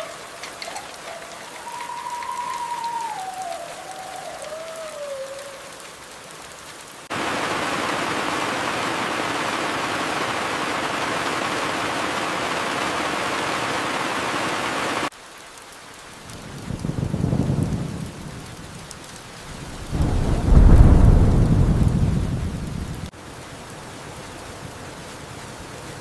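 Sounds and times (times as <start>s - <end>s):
whistle gliding down in pitch: 0.0s - 5.7s
heavy downpour: 0.0s - 26.0s
steady rain hiss: 0.0s - 26.0s
low thunder rumble: 16.4s - 23.1s.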